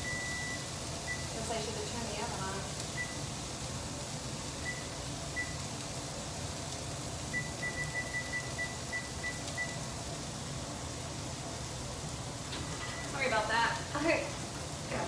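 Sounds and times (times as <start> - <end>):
oven keypad beeps: 0.0 - 1.6, 2.8 - 3.3, 4.6 - 5.7, 7.3 - 10.0, 12.6 - 13.3.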